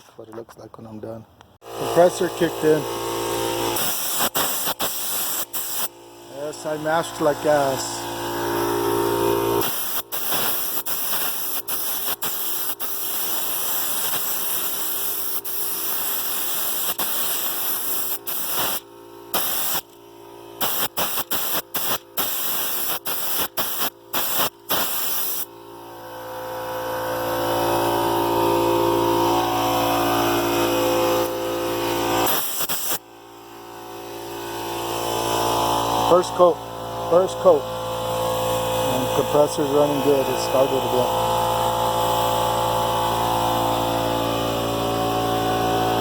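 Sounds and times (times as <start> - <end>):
air compressor motor hum: 1.6 - 46.0
spray gun air hiss: 3.7 - 5.9, 9.5 - 19.9, 20.6 - 25.6, 31.8 - 33.0.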